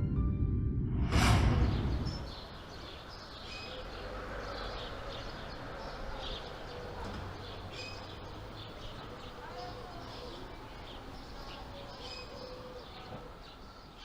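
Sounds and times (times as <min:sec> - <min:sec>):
whoosh: 0:00.0 - 0:03.1
birds chirping: 0:01.4 - 0:14.0
outdoor background hiss: 0:01.4 - 0:14.0.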